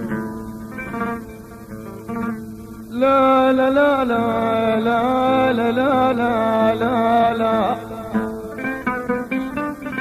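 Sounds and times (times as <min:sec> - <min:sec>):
plucked string instrument: 0:00.0 - 0:10.0
person singing: 0:02.9 - 0:08.9.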